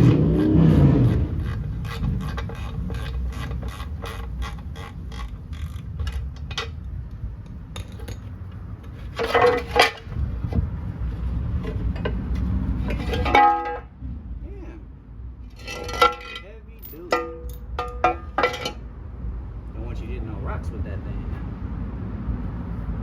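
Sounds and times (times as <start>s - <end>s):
metallic knocks: 0.0s - 10.6s, 11.6s - 14.0s, 15.5s - 18.9s
hand ratchet clicking: 0.1s - 7.0s.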